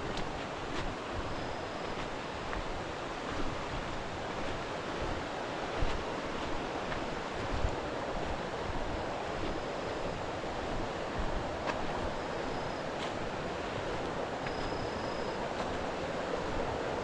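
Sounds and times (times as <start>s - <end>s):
faint high thin whistle: 12.2s - 12.9s, 14.4s - 15.4s.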